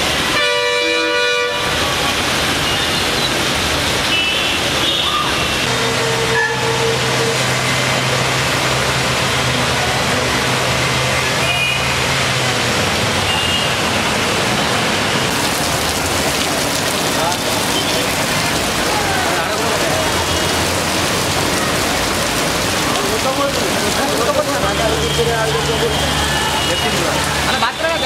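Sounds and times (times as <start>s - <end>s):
floodwater rushing: 0.0s - 28.0s
heavy rain pouring: 0.0s - 28.0s
vehicle horn: 0.3s - 1.9s, 4.1s - 7.5s, 13.3s - 13.9s, 25.0s - 27.1s.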